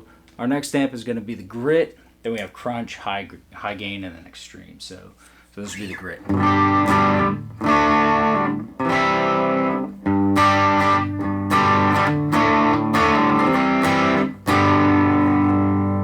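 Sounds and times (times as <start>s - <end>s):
electric guitar strumming chords: 6.2s - 16.0s.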